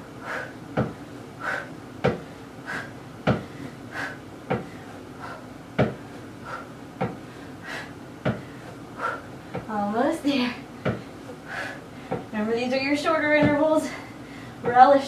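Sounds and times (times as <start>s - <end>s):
dull thumps of feet on box: 0.7s - 1.0s, 2.0s - 2.3s, 3.2s - 3.5s, 4.5s - 4.8s, 5.8s - 6.0s, 7.0s - 7.2s, 8.2s - 8.5s, 10.8s - 11.1s, 13.4s - 13.7s.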